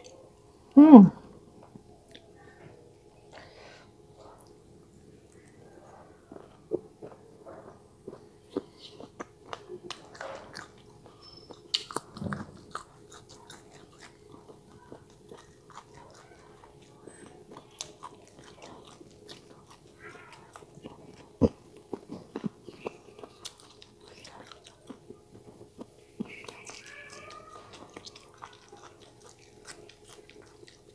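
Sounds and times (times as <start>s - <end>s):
chewing with soft crunches: 0.0s - 30.9s.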